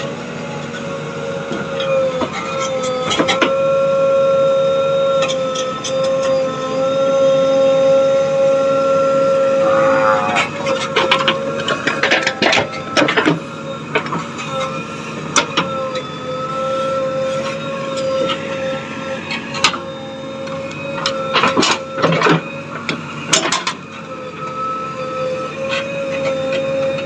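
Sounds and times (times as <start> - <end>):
machinery whining: 5.6 - 15.0.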